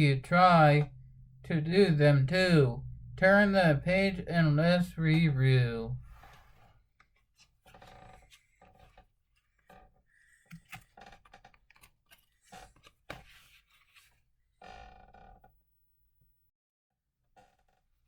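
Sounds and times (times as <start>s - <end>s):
book pages turning: 10.4s - 14.2s.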